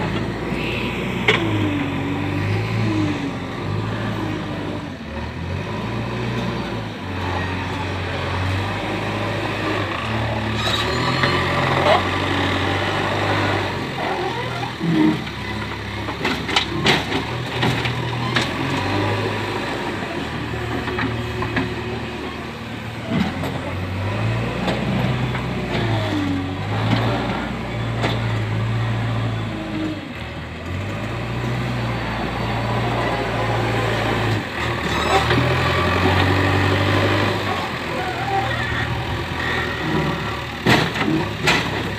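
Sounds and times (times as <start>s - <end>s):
diesel engine running: 0.0s - 41.9s
knocks and clatter: 16.1s - 18.8s, 40.6s - 41.9s.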